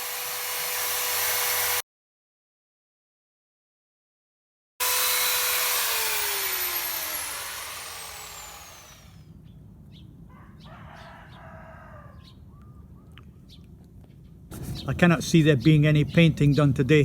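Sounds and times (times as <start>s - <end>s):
power tool motor winding down: 0.0s - 1.8s, 4.8s - 9.2s.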